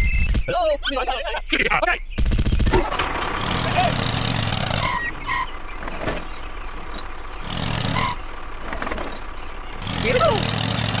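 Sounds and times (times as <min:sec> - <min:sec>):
vehicle engine running: 0:02.3 - 0:11.0.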